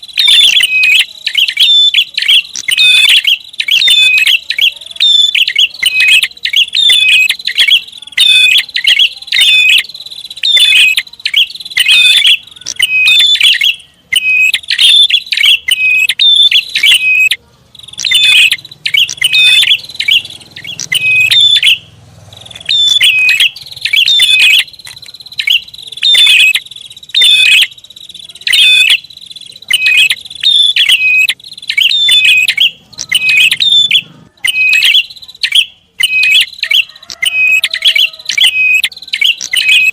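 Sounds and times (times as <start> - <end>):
bird chirping calls: 0.0 - 39.9.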